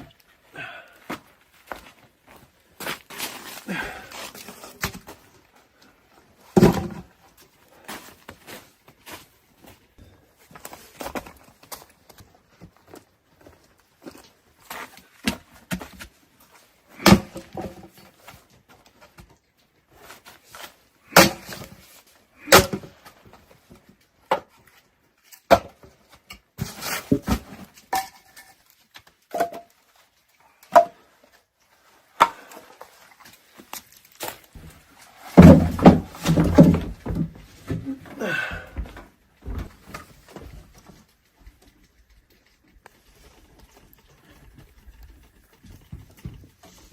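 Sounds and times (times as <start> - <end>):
knocks and thumps: 35.4 - 40.0.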